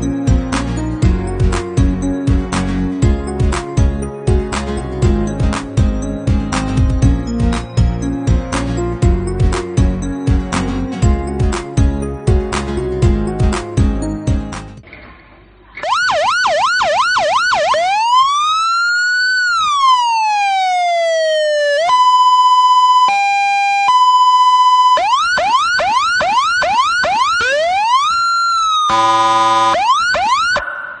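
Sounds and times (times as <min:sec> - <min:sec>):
siren yelp and wail: 0:15.8 - 0:31.0
buzzy horn blast: 0:28.9 - 0:29.8.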